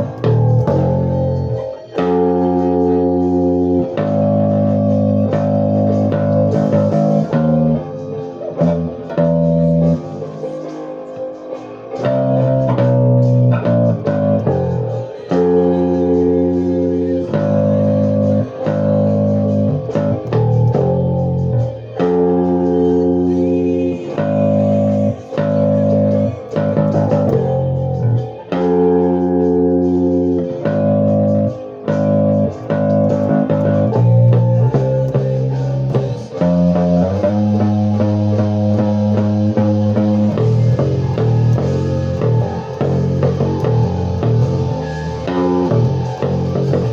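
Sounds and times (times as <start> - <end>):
guitar and bass chords: 0.0 - 46.9.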